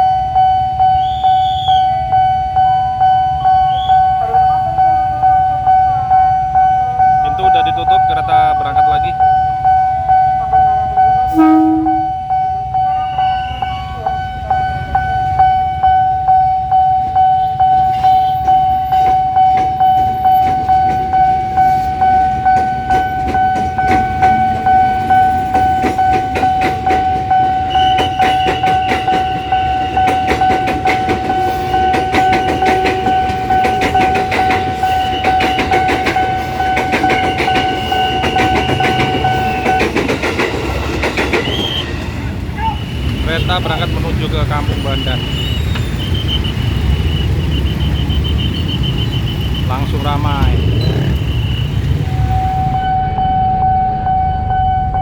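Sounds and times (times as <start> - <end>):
level crossing bell alarm: 0.0 - 42.0, 42.8 - 55.0
train wheels clattering: 17.7 - 52.8.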